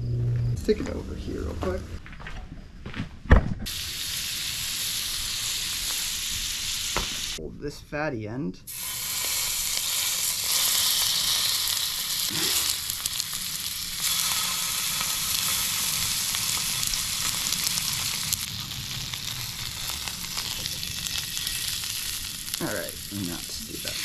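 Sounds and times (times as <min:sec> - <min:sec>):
steak sizzling in a pan: 0:03.7 - 0:07.4, 0:08.7 - 0:24.0.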